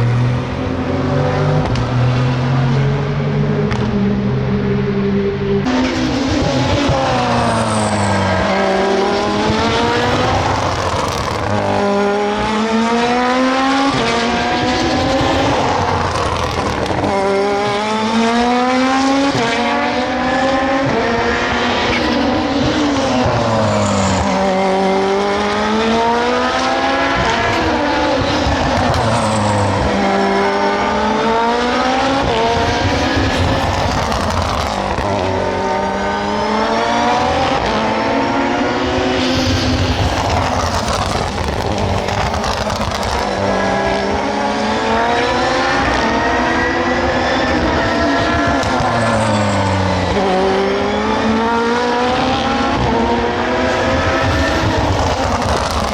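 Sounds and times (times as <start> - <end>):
race car engines shifting gears: 0.0 - 55.9.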